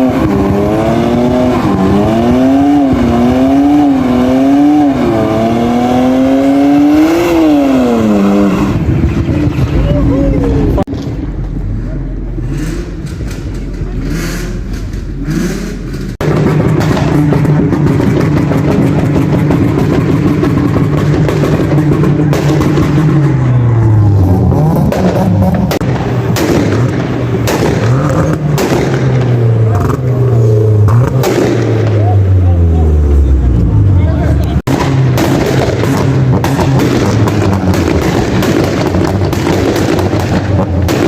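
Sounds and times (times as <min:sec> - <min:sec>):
car engine revving: 0:00.0 - 0:41.0
sharp exhaust cracks: 0:12.3 - 0:32.8, 0:34.4 - 0:41.0.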